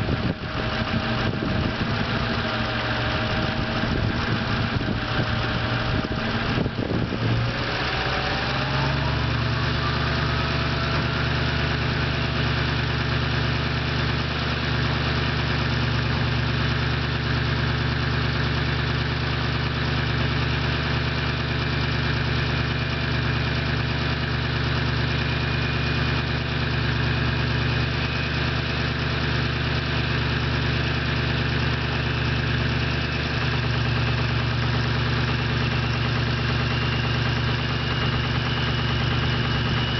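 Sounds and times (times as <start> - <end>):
turbo whine rising in pitch: 0.0 - 14.1, 31.4 - 39.9
diesel engine idling: 0.0 - 39.9.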